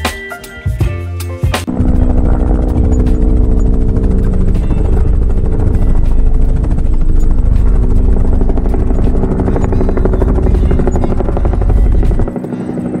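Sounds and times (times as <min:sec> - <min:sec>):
heavy low rumble: 0:01.7 - 0:12.3
toy helicopter motor whirring: 0:01.8 - 0:12.3.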